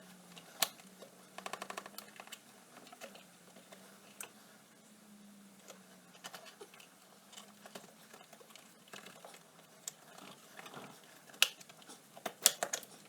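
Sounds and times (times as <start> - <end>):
tools and small parts clicking: 7.3 - 13.0.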